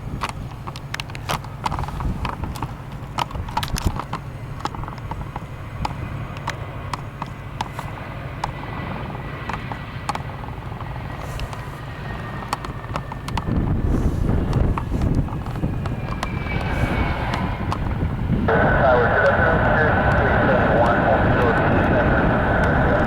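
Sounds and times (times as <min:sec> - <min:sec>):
low rumble: 0:01.4 - 0:23.0
sharp clicks and taps: 0:12.4 - 0:13.6.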